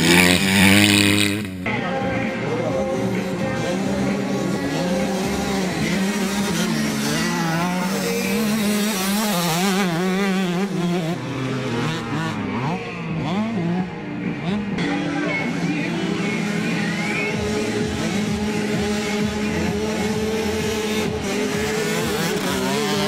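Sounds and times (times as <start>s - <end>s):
motocross bike engines revving: 0.0s - 23.0s.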